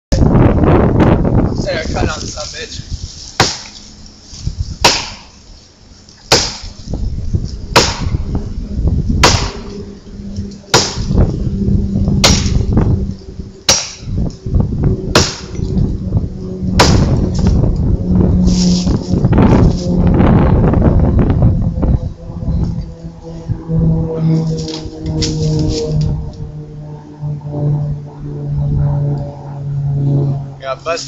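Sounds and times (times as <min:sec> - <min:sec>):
low steady hum: 0:00.1 - 0:31.0
axe chopping into tree trunk: 0:03.4 - 0:03.8, 0:04.8 - 0:05.3, 0:06.3 - 0:06.7, 0:07.7 - 0:08.1, 0:12.2 - 0:12.5.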